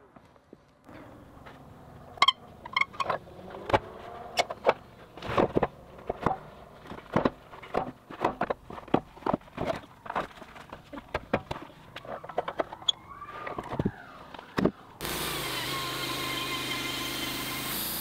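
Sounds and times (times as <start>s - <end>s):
sharp knocks and clatters: 3.0s - 12.8s.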